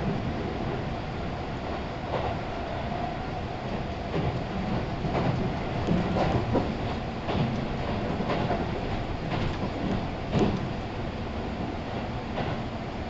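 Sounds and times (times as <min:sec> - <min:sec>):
wheels rumbling on rail: 0:00.0 - 0:13.0
clack over rail joints: 0:03.7 - 0:10.8, 0:11.6 - 0:12.7.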